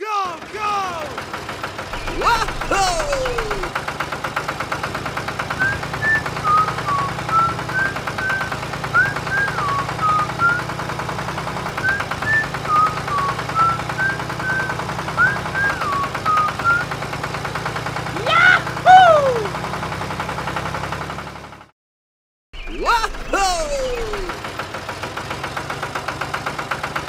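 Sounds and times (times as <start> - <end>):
small engine rattling: 0.1 - 21.7, 22.9 - 27.0
high whistle-like tune: 5.6 - 10.7, 11.8 - 16.8.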